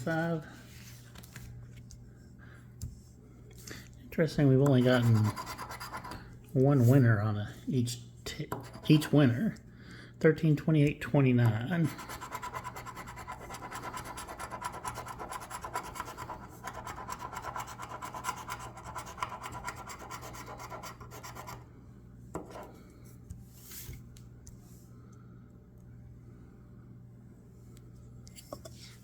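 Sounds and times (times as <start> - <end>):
scratching lottery ticket: 4.7 - 6.2, 11.8 - 21.6.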